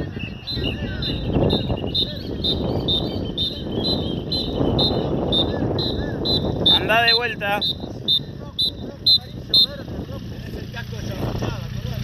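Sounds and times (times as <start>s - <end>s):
bird chirping: 0.0s - 9.7s
motorcycle moving slowly: 0.0s - 12.0s
wind noise: 0.0s - 12.0s.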